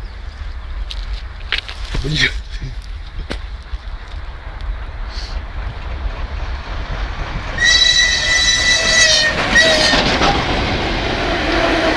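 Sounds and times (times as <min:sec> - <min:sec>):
train rumbling: 0:00.0 - 0:11.9
steam locomotive whistle: 0:07.6 - 0:10.5.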